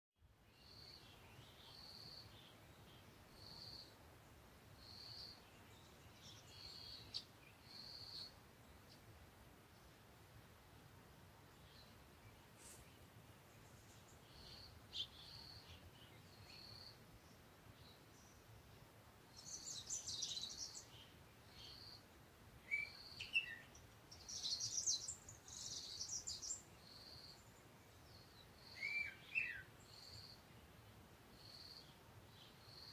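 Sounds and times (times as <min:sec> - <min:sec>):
birds chirping: 0:11.5 - 0:30.4.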